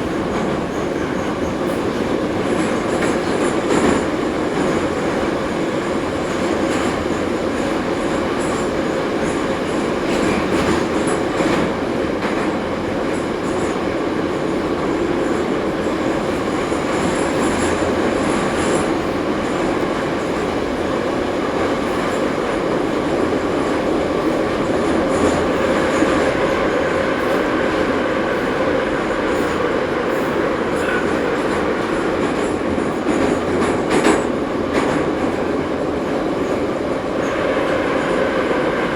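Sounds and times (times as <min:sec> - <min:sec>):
train wheels rumbling: 0:00.0 - 0:38.9.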